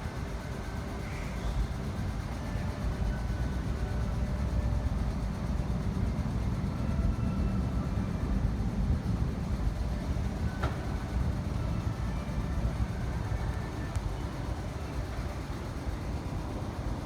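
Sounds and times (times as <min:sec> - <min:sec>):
electric train rumbling on rails: 0:00.0 - 0:17.0.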